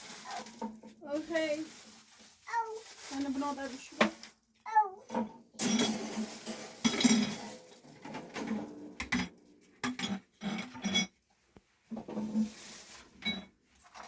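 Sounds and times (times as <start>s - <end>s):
dishes and pots clinking: 5.1s - 11.2s, 13.2s - 14.0s.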